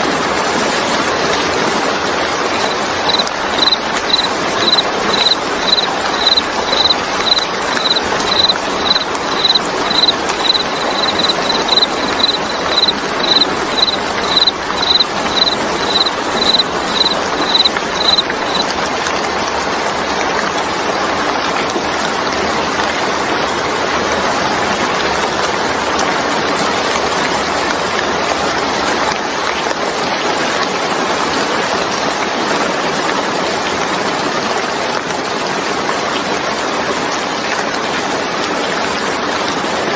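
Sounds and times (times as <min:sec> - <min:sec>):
steady rain: 0:00.0 - 0:39.9
high chirp: 0:02.6 - 0:18.7.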